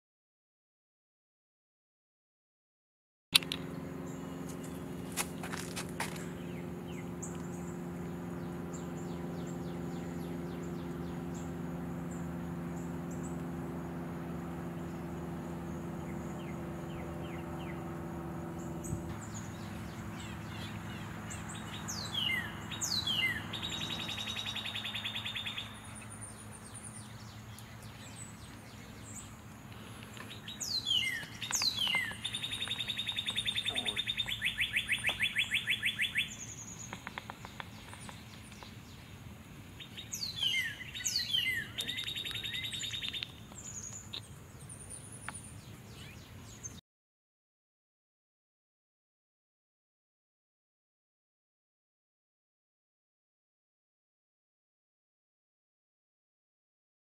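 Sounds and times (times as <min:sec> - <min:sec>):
low steady hum: 0:03.4 - 0:46.8
songbird whistles and trill: 0:19.2 - 0:29.2, 0:30.1 - 0:38.8, 0:39.8 - 0:46.8.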